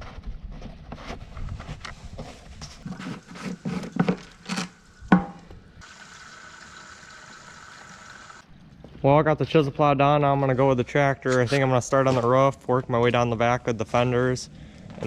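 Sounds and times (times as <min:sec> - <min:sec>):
objects being handled: 0:00.6 - 0:05.6.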